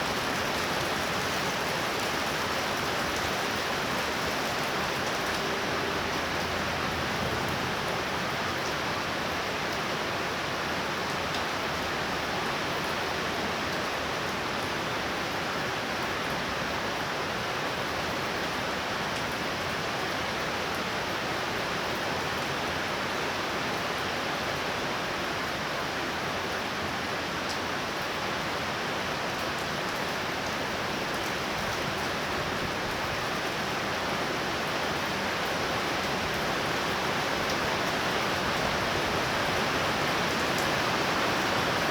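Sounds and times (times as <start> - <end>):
torrential rain: 0.0 - 41.9.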